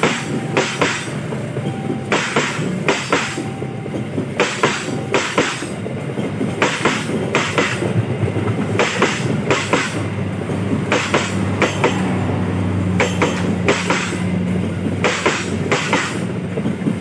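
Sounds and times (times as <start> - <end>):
train wheels clacking on rail joint: 0.0 - 12.3, 12.9 - 17.0.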